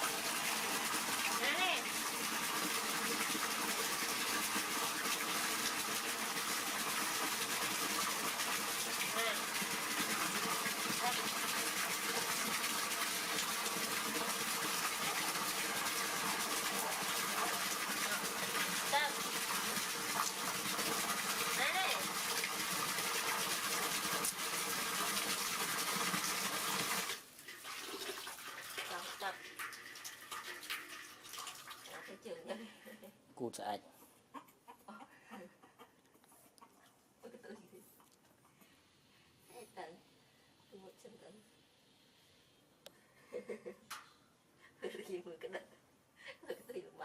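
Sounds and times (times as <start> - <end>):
water running from a tap: 0.0 - 32.4.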